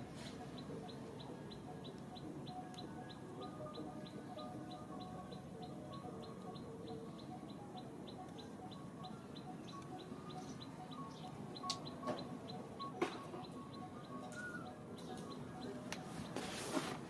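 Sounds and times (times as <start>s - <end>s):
bird chirping high note: 8.2s - 15.8s.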